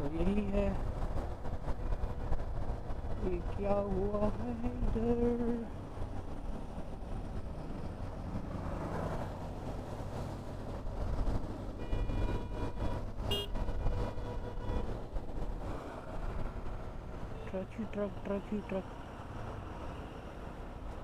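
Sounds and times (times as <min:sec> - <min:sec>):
vehicle horn blast: 0:11.8 - 0:13.6.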